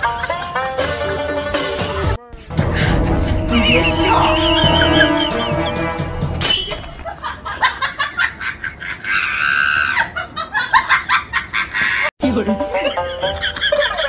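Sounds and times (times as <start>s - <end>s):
music with pitched tones: 2.5s - 7.0s.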